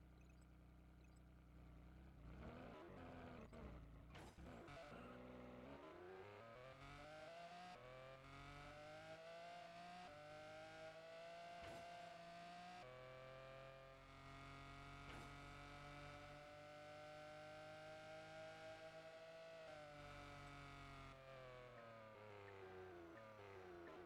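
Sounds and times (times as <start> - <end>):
faint vehicle engine speeding up: 1.1 - 24.0.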